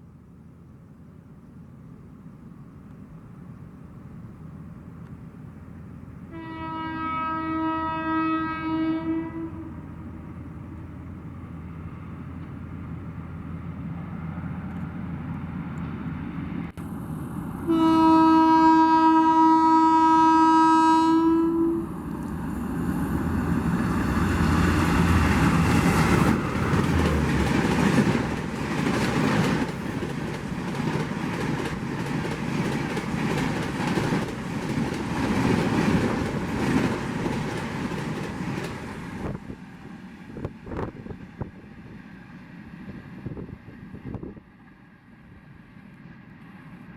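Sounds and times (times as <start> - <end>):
train horn blasts: 6.3 - 9.9, 17.6 - 22.0
train wheels clattering on rails: 23.6 - 39.6.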